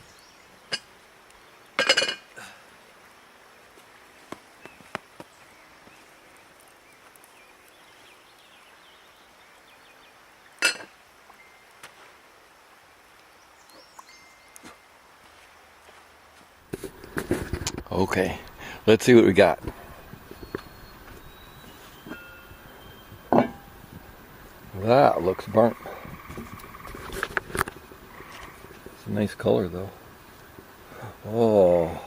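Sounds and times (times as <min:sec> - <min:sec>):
outdoor background noise: 0:00.0 - 0:32.0
cooking gear clinking: 0:22.0 - 0:23.9.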